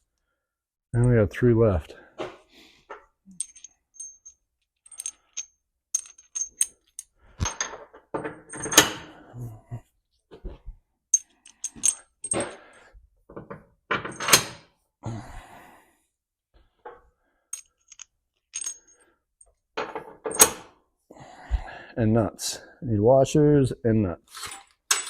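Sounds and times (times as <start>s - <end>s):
metal washers clinking: 1.0s - 1.2s, 2.9s - 9.0s, 11.1s - 12.8s, 13.4s - 14.6s, 17.5s - 20.6s, 24.4s - 25.0s.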